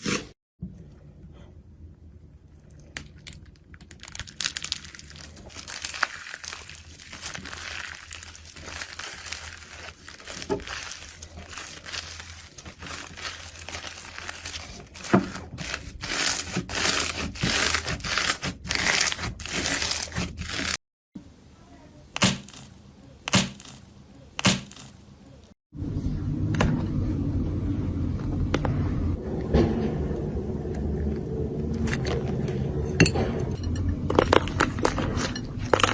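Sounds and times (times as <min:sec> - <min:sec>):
slime crackling and popping: 0:03.0 - 0:14.6.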